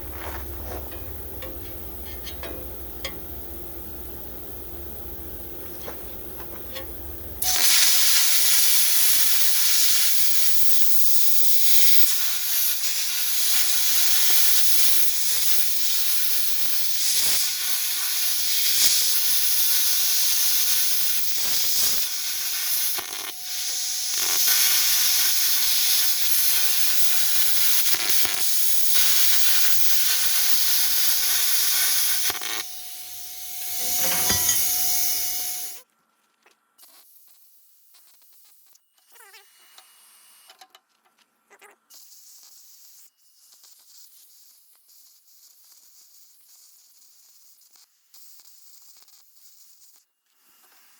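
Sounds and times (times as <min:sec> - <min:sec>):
cutting torch hissing: 0:07.4 - 0:35.8.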